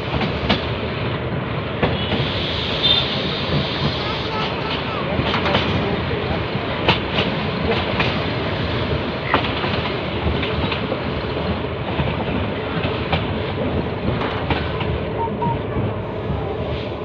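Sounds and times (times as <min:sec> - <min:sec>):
train rumble: 0:00.0 - 0:17.0
train wheels clattering: 0:01.7 - 0:15.1.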